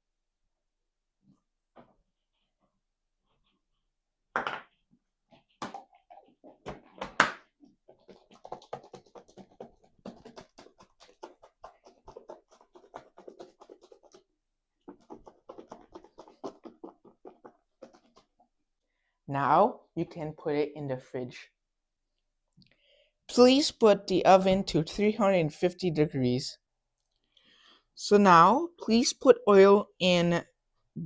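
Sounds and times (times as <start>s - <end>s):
quick even tapping strokes: 8.1s - 14.2s.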